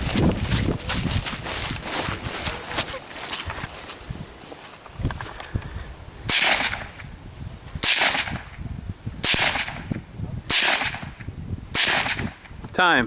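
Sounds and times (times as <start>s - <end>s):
rifle shots: 6.3s - 7.0s, 7.8s - 8.5s, 9.2s - 12.5s.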